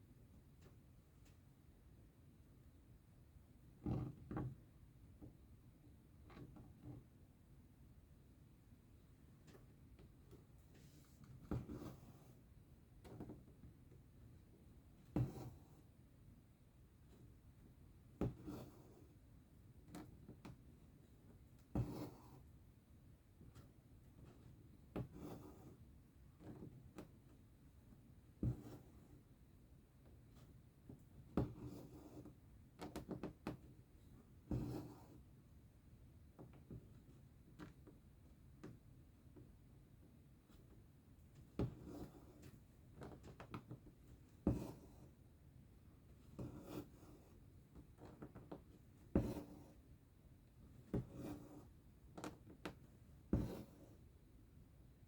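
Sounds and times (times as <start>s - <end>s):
needle tapping through fabric: 15.0s - 15.6s, 18.2s - 18.7s, 21.6s - 22.3s, 28.4s - 28.9s, 30.9s - 33.8s, 34.4s - 35.0s, 41.4s - 45.1s, 46.4s - 49.8s, 50.9s - 54.0s
thread rasping through fabric: 46.4s - 49.8s, 50.9s - 54.0s.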